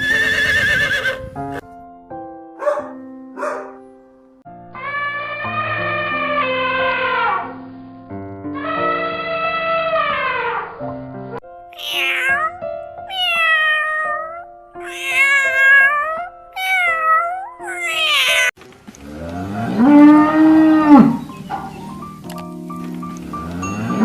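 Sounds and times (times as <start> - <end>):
soft background music: 0.0 - 24.0
cat meowing: 11.7 - 18.6
cow mooing: 19.0 - 21.6, 23.3 - 24.0.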